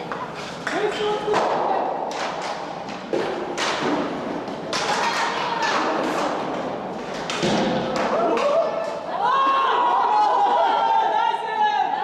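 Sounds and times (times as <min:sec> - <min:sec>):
hockey sticks and puck knocking: 0:00.0 - 0:08.7.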